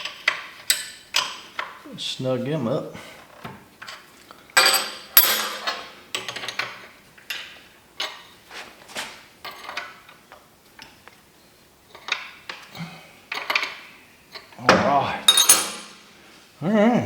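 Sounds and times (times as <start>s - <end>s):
hand tools clanking on metal: 3.8s - 8.2s, 12.0s - 16.1s.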